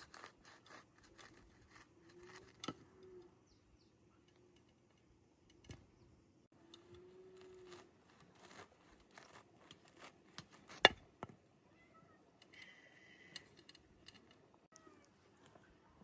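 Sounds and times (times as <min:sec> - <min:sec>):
light rustling and scraping: 0:06.7 - 0:11.4.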